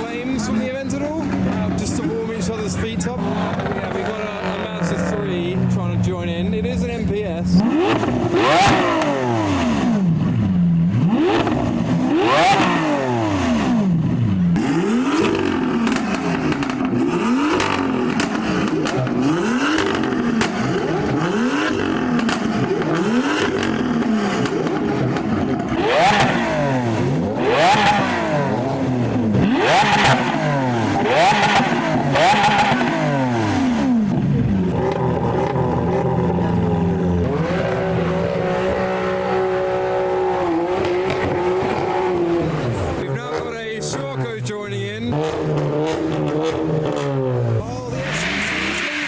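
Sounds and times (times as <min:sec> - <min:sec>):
sports car engines revving: 0:00.0 - 0:49.0.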